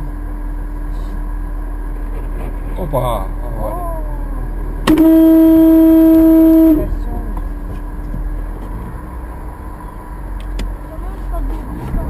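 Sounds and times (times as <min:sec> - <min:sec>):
vehicle running noise: 0:00.0 - 0:12.0
car horn blast: 0:04.8 - 0:07.2.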